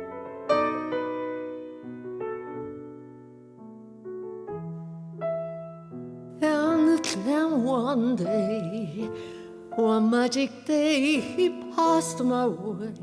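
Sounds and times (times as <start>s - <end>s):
soft piano chords: 0.0s - 13.0s
woman singing with vibrato: 6.4s - 13.0s.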